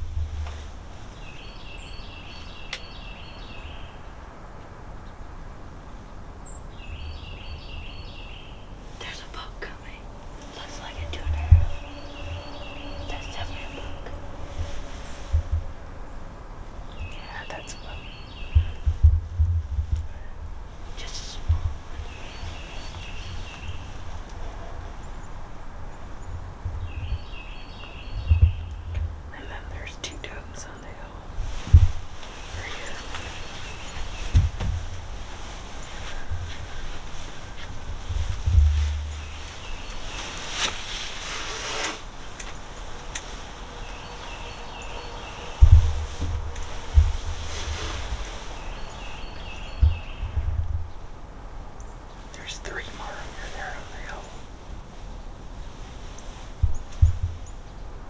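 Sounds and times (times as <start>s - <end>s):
steady low rumble: 0.0s - 41.3s, 42.1s - 58.0s
light wind hum: 0.0s - 58.0s
songbird singing: 0.0s - 58.0s
bird calling: 6.0s - 18.9s, 32.2s - 34.4s, 38.8s - 50.5s
heavy bumps: 8.9s - 17.5s, 31.4s - 51.2s.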